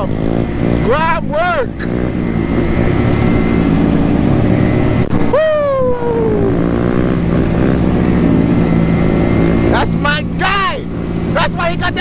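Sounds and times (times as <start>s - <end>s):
scooter engine running: 0.0s - 12.0s
person shouting: 0.9s - 1.8s, 5.3s - 6.7s, 10.2s - 12.0s.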